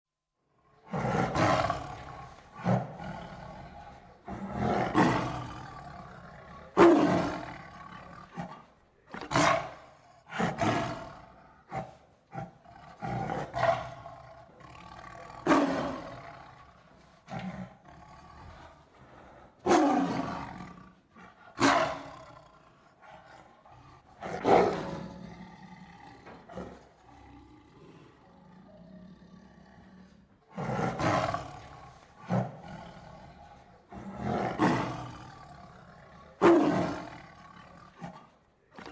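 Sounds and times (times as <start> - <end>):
big cat roaring: 0.6 - 38.9.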